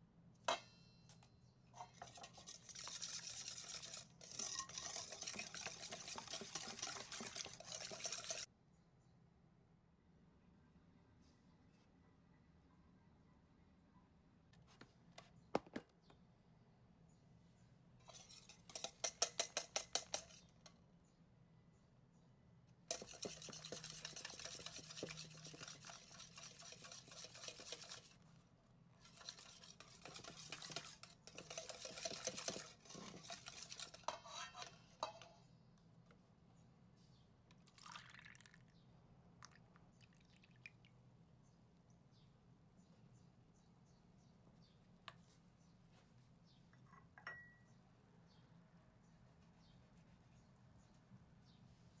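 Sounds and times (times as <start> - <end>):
whisk clinking in a bowl: 1.8 - 8.5, 18.1 - 20.7, 22.9 - 28.2, 29.0 - 35.3, 47.2 - 47.6
whisking liquid batter: 1.8 - 8.5, 18.1 - 20.7, 22.9 - 28.3, 29.0 - 35.2.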